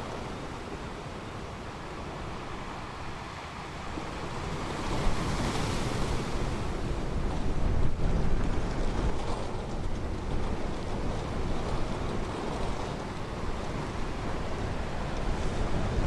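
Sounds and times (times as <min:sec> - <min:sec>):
ocean surf washing onto beach: 0:00.0 - 0:16.0.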